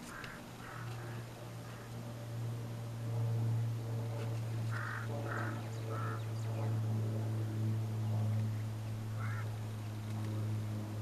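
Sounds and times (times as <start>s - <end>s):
steady low hum: 0.0s - 11.0s
short bird calls: 4.7s - 6.3s, 9.2s - 9.5s.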